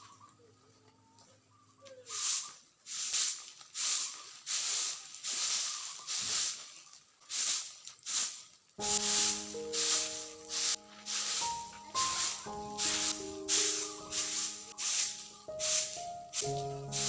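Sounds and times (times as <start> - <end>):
broom sweeping floor: 2.1 - 17.0
soft music: 8.8 - 17.0.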